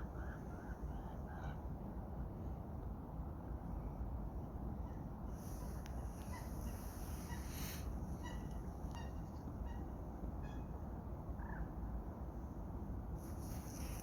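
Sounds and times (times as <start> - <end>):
bird calling: 6.2 - 9.8.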